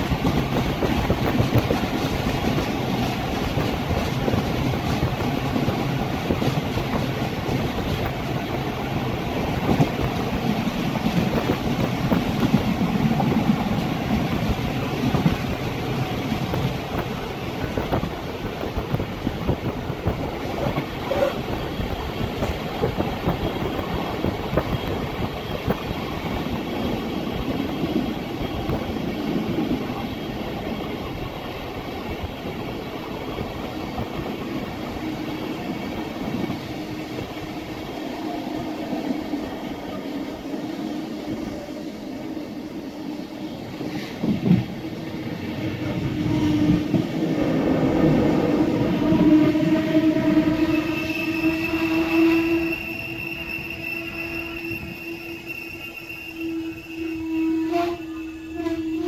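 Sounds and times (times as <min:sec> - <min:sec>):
wheels clickety-clack: 0:00.0 - 0:08.7
train wheels rumbling on rails: 0:00.0 - 0:59.0.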